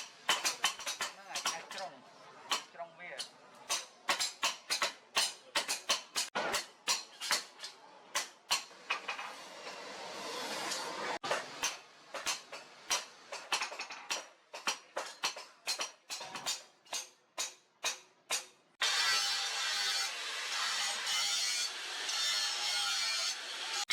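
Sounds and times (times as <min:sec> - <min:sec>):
hammer striking steel on anvil: 0:00.0 - 0:01.8, 0:02.5 - 0:09.9, 0:10.7 - 0:23.4
hiss: 0:09.3 - 0:11.7.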